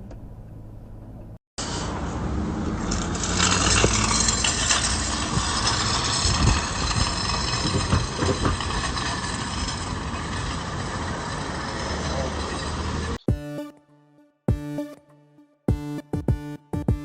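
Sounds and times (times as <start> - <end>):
road and cabin noise: 0.0 - 13.3.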